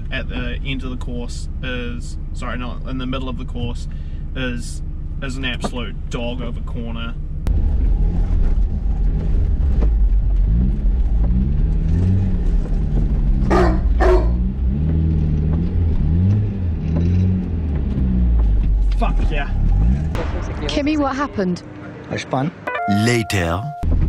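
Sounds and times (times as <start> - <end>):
car engine revving: 7.5 - 20.2.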